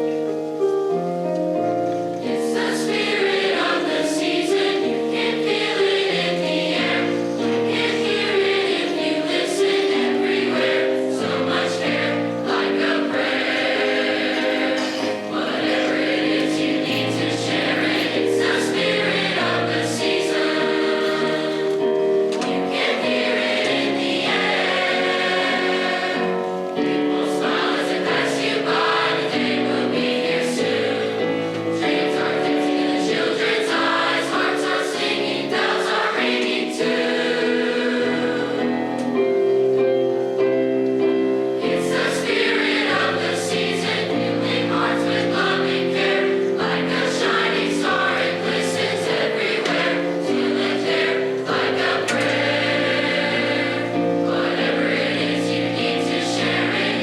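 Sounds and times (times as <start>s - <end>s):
choir singing: 0.0s - 57.0s.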